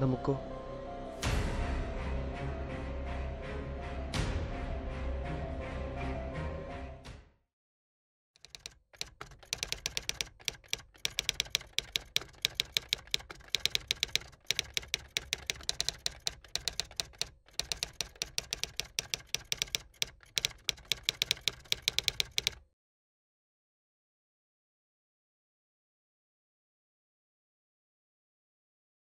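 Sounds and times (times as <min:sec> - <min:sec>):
keyboard typing clicks: 0:08.4 - 0:22.6.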